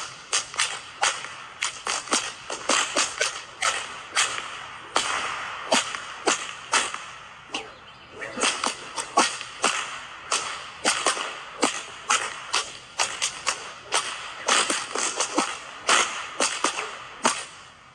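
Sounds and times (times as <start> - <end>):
sharp cracks or snaps: 0.3 - 7.1, 8.4 - 17.6.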